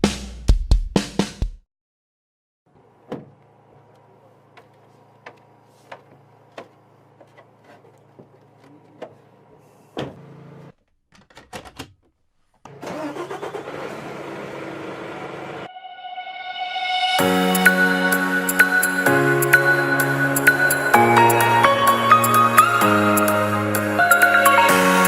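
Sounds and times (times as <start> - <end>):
music: 0.0 - 1.6, 15.7 - 25.0.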